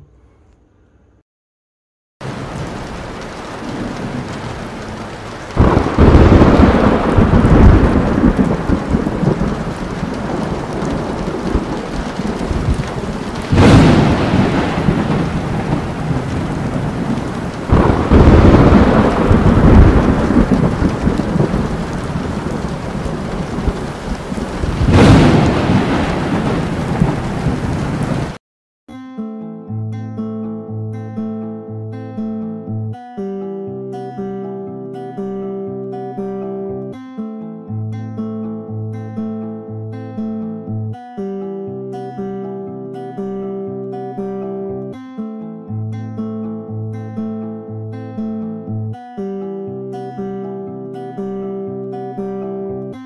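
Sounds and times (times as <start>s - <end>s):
steady rain: 2.2s - 28.4s
thunder rumbling: 2.2s - 28.4s.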